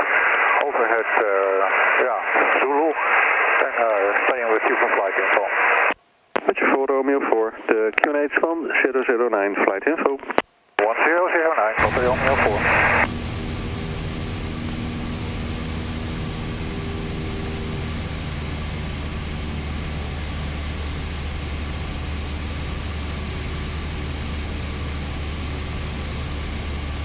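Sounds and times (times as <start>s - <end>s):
small plane engine droning: 11.8s - 27.0s.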